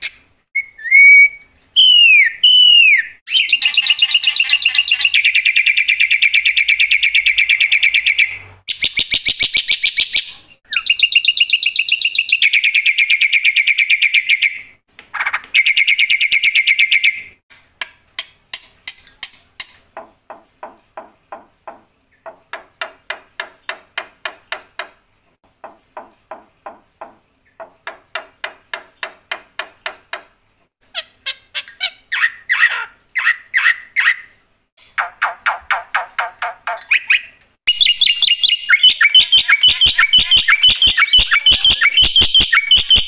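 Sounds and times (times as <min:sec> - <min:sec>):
bird rattling song: 0:34.9 - 0:43.0
harsh bird squawking: 0:37.7 - 0:43.0.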